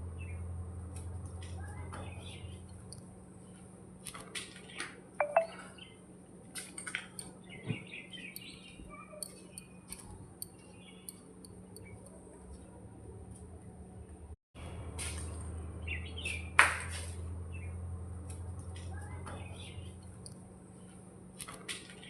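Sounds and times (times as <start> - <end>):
bird chirps: 5.2 - 5.9, 7.2 - 9.9
small clicks: 8.4 - 12.2.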